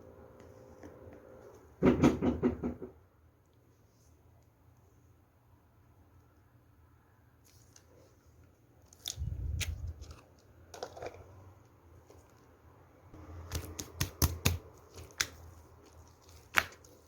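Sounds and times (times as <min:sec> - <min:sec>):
slime squishing: 0:13.3 - 0:17.0.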